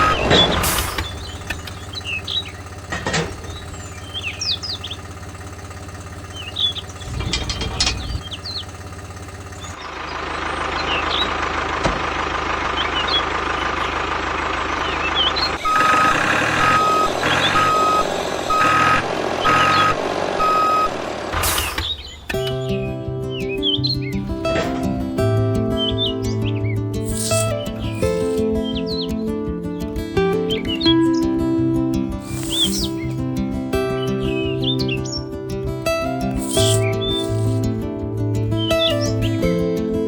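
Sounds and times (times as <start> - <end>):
reversing alarm beeping: 0.0 - 2.5, 15.6 - 21.2
birds chirping: 0.0 - 11.8, 12.5 - 17.8, 18.7 - 19.9, 21.6 - 24.4, 25.7 - 29.9, 32.2 - 33.3, 34.0 - 35.4, 36.0 - 37.8, 38.5 - 39.6
engine running steadily: 0.0 - 40.0.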